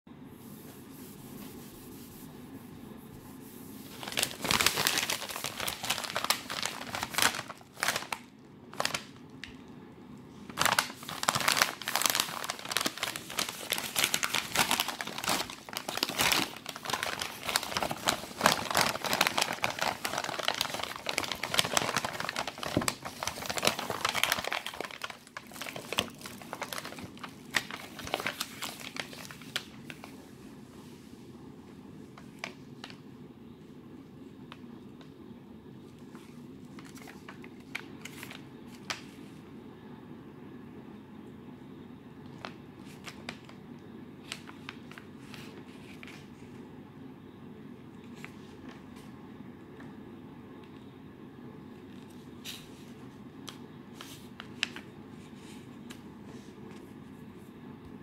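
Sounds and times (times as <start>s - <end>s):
packaging crinkling and rustling: 3.8s - 9.8s, 10.4s - 30.2s, 32.1s - 33.0s, 35.9s - 39.3s, 42.3s - 43.6s, 44.2s - 46.4s, 51.8s - 56.1s.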